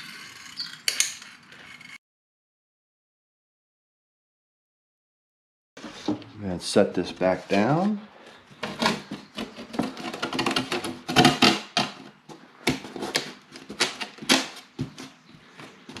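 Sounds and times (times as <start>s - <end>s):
plywood sheet clicking and knocking: 8.6s - 15.2s.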